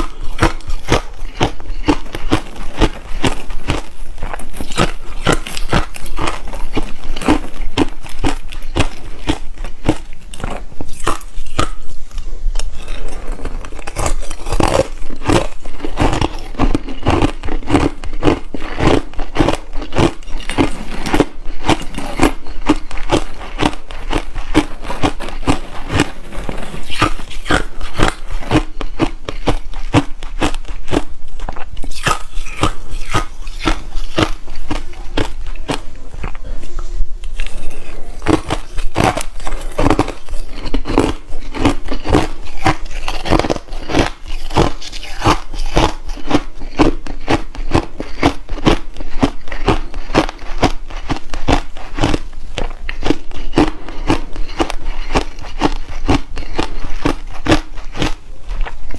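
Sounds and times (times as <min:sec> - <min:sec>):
chewing crushed ice: 0:00.0 - 0:58.9.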